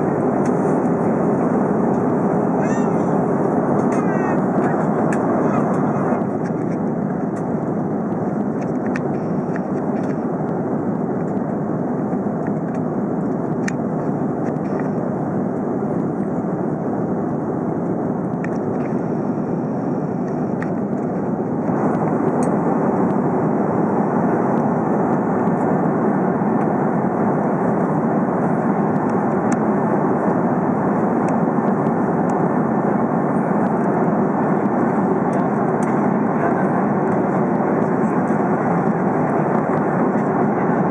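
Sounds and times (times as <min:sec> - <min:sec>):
airliner cabin engine rush: 0:00.0 - 0:40.9.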